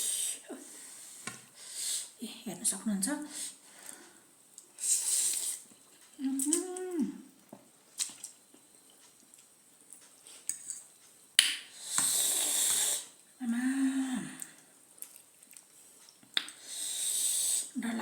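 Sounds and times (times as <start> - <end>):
person hissing: 0.0 - 0.4, 4.8 - 5.6, 11.8 - 13.2, 16.6 - 17.8
person humming mmm: 6.2 - 7.3.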